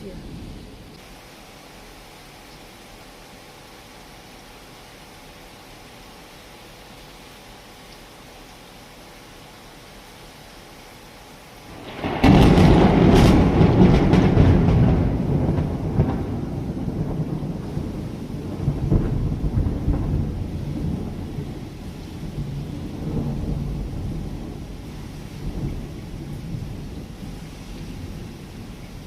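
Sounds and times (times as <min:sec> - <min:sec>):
thunder rumbling: 0:11.6 - 0:29.0.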